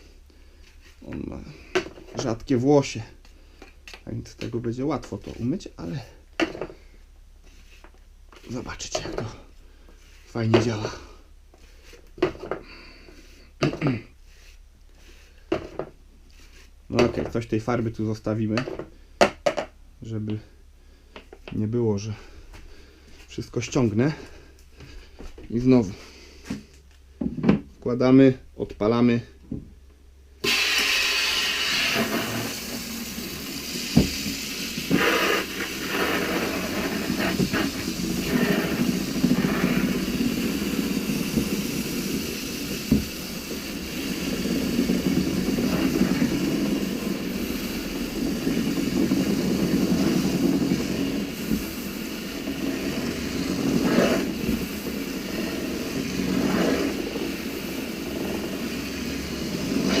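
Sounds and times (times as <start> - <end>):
paint roller whirring: 30.4 - 60.0.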